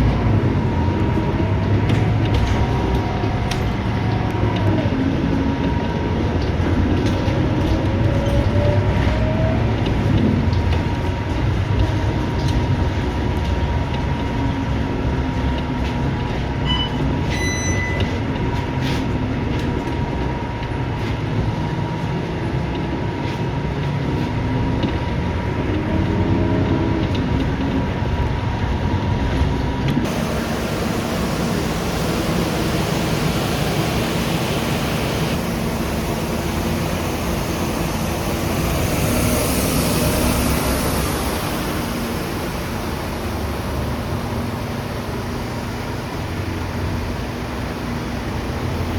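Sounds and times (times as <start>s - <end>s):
bus engine running: 0.0s - 48.9s
road rumble: 0.0s - 48.9s
short high beep: 16.6s - 18.2s
thin steady whine: 30.1s - 43.7s.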